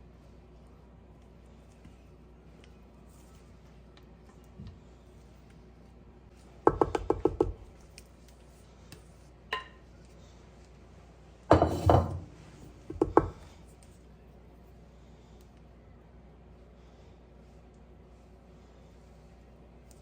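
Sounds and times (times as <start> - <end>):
dishes knocking: 11.5 - 12.3.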